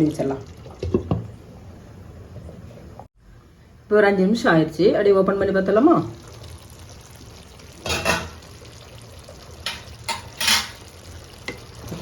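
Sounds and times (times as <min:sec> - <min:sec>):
pan lid clatter: 0:09.6 - 0:10.9.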